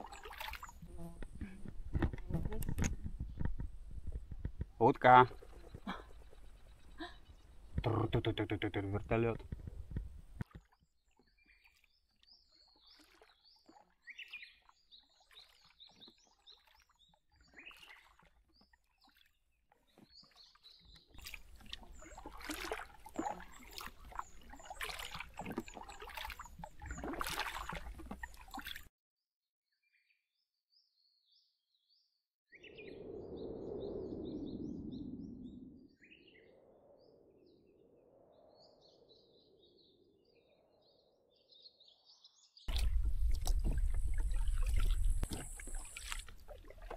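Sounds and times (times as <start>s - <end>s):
splashing and knocking: 0.0s - 6.2s, 17.7s - 28.9s, 42.7s - 46.9s
small birds chirping: 4.8s - 9.4s, 19.8s - 28.6s.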